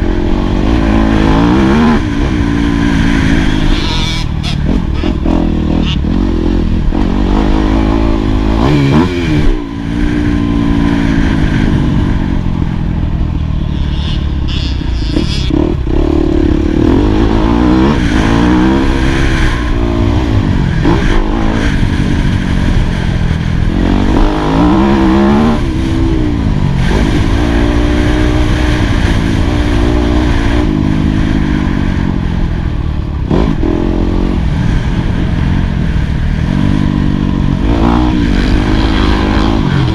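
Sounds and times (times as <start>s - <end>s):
motocross engine revving: 0.0s - 12.2s, 13.6s - 26.1s, 36.3s - 39.9s.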